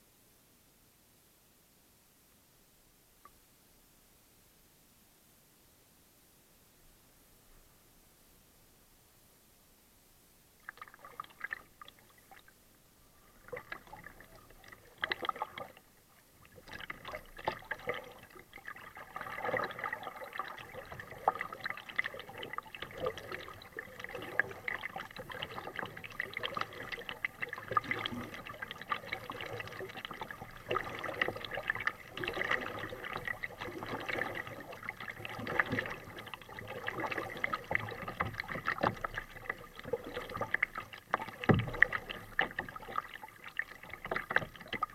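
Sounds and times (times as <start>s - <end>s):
water trickling off paddle: 10.6s - 44.9s
paddle splashing in water: 13.2s - 44.9s.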